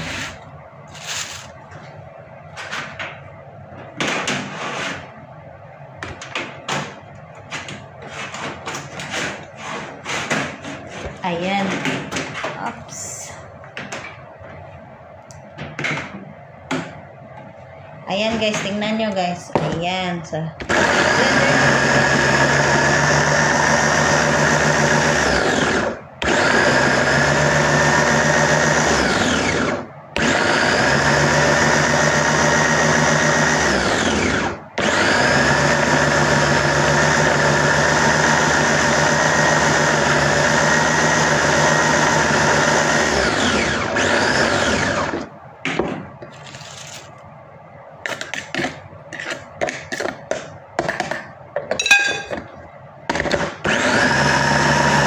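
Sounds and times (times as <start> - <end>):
electric blender motor whirring: 20.6 - 45.3, 53.2 - 55.0.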